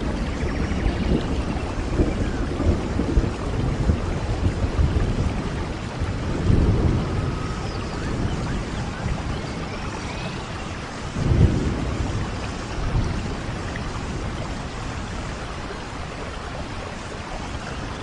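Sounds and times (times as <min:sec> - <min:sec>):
steady rain: 0:00.0 - 0:18.0
thunder rumbling: 0:00.0 - 0:18.0.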